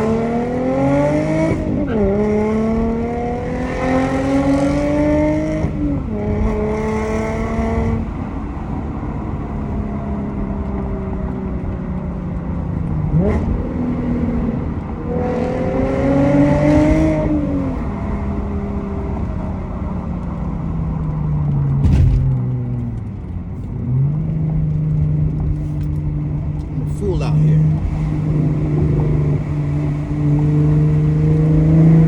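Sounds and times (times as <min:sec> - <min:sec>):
car engine revving: 0:00.0 - 0:11.8, 0:12.6 - 0:32.0
exhaust crack: 0:20.3 - 0:29.8.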